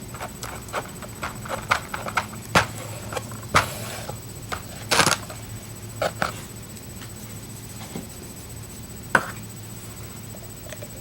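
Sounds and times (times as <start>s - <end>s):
faint steady hum: 0.0s - 11.0s
clicks and taps of handled objects: 0.1s - 3.7s.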